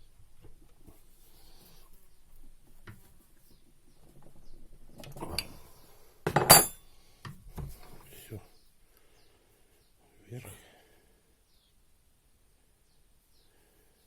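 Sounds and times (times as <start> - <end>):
metal parts clinking on work surface: 6.3 - 6.8.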